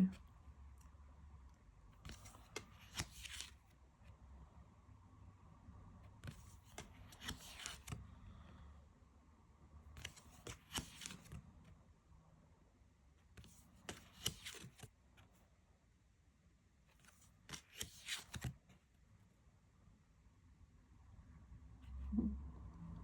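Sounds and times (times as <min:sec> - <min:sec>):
cards snapping and sliding: 0:02.0 - 0:03.6, 0:06.2 - 0:08.0, 0:10.0 - 0:11.4, 0:13.8 - 0:14.9, 0:17.0 - 0:18.6.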